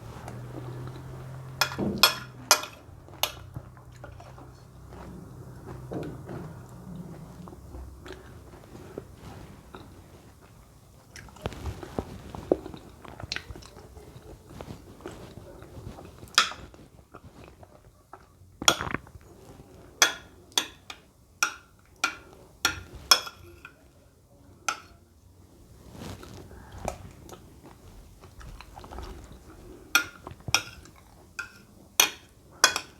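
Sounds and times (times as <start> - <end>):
wet chewing mouth noises: 0.0 - 1.7, 2.4 - 19.9, 26.0 - 31.7.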